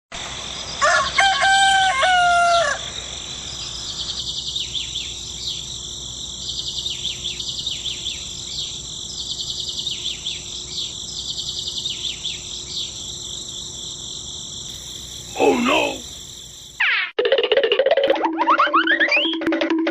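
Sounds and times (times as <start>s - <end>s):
birds and insects chirping: 0.2s - 16.8s
rooster crowing: 0.8s - 2.9s.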